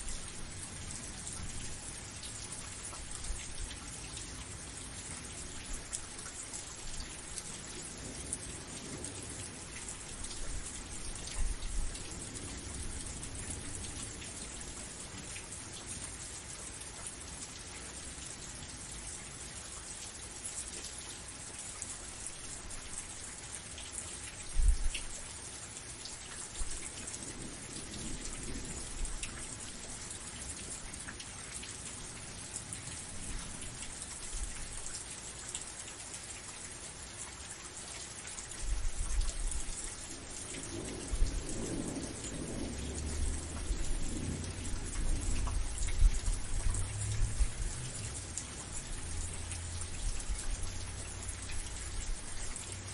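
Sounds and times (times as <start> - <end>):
rain hissing: 0.0 - 52.9
thunder rumbling: 39.7 - 48.3.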